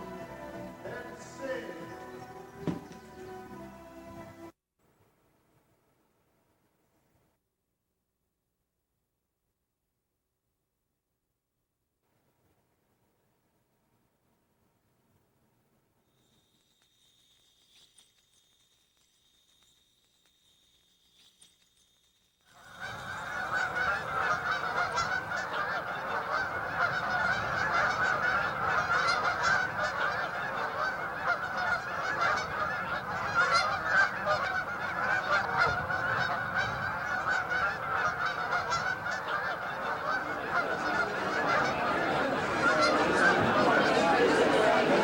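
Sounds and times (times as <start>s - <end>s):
flock of geese honking: 0.0s - 4.5s, 22.5s - 45.0s.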